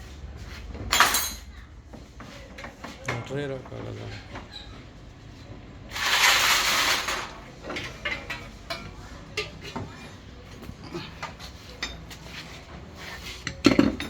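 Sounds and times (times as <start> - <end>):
metal tools clicking and clinking: 0.9 - 1.5.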